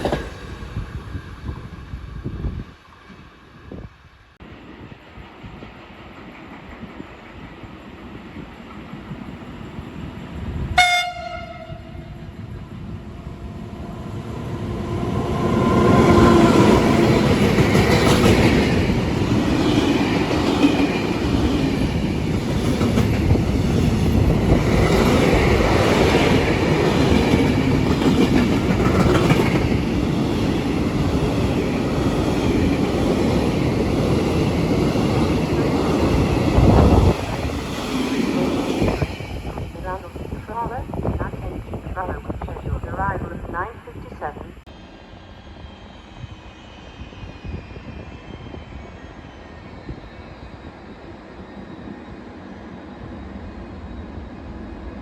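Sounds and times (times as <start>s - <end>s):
train rushing past: 0.0s - 55.0s
train horn: 10.8s - 12.2s.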